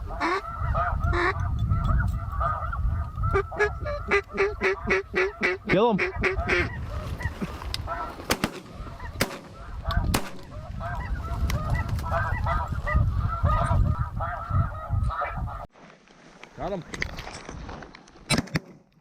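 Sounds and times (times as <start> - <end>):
geese honking: 0.0 - 15.7
low wind rumble: 0.0 - 15.7
shotgun shots: 8.3 - 10.6.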